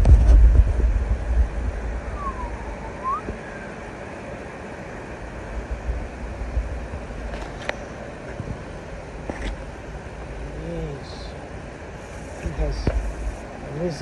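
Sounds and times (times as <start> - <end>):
wind rumble on microphone: 0.0 - 10.3
whistle-like call: 2.1 - 3.3.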